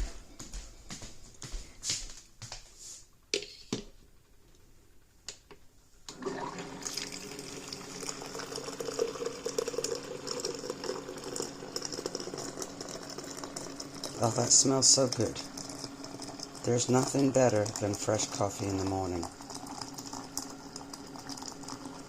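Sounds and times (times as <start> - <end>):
water pouring into glass carafe: 6.1 - 22.0.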